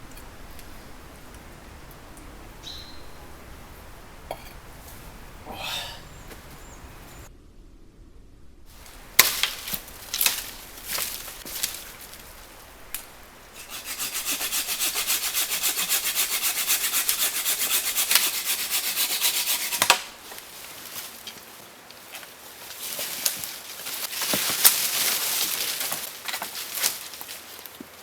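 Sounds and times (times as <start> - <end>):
back-and-forth sawing: 12.9 - 20.4.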